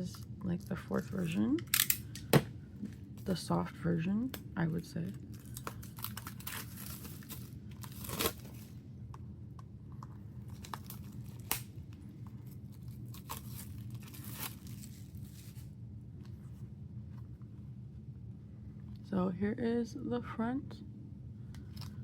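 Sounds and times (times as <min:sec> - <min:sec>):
plastic shrink wrap tearing: 0:05.3 - 0:08.7, 0:10.5 - 0:11.7, 0:12.5 - 0:15.7.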